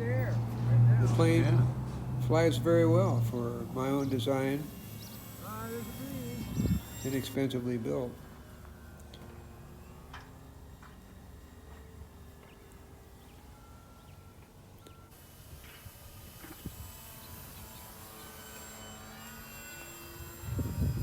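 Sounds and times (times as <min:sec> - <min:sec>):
low wind rumble: 0:00.0 - 0:07.4, 0:20.2 - 0:21.0
electric model plane motor whine: 0:03.0 - 0:21.0.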